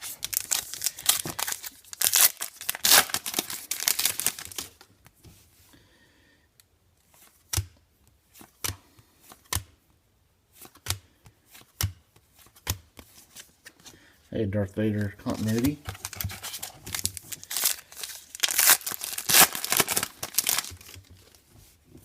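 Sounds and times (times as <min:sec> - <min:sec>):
wrapper crinkling and rustling: 0:00.0 - 0:04.9, 0:15.2 - 0:21.4.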